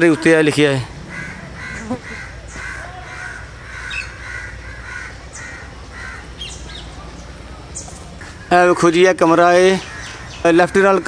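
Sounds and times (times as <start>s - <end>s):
bird short repeated calls: 1.0s - 6.9s.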